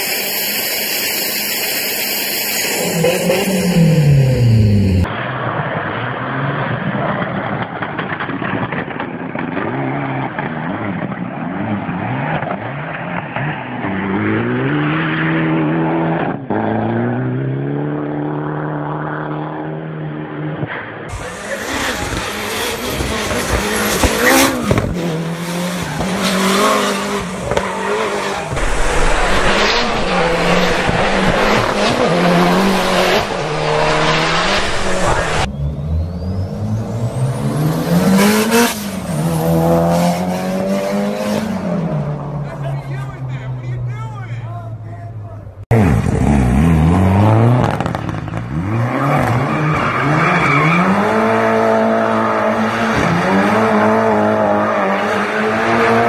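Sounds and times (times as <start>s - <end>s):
race car engine revving: 1.3s - 19.6s, 21.1s - 43.7s.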